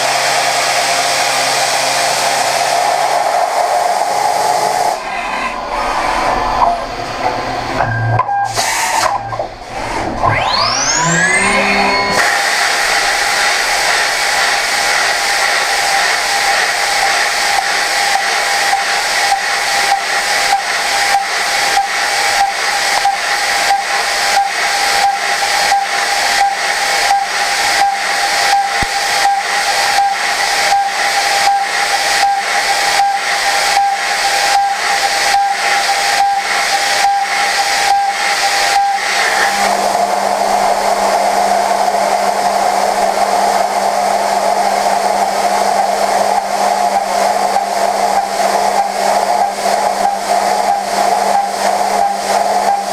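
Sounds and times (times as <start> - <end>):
milling machine cutting steel: 0.0 - 52.9
low hum: 4.6 - 14.7, 38.8 - 52.9.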